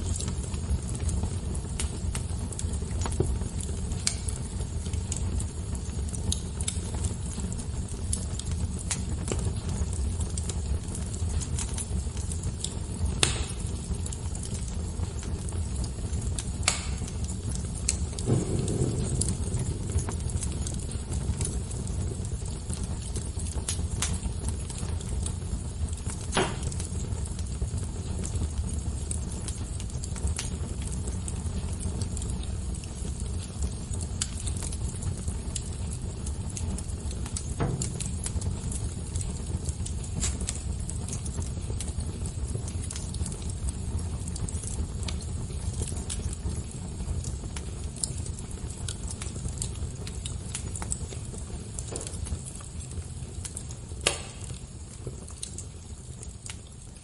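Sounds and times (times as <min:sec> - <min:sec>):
fire crackling: 0:00.0 - 0:57.0
low rumble: 0:18.1 - 0:22.5.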